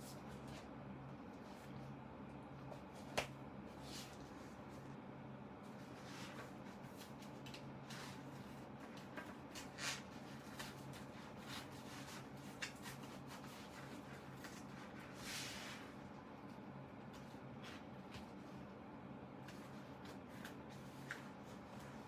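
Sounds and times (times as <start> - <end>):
steady low hum: 0.0 - 22.0
scratching and rustling of cover: 5.6 - 16.1.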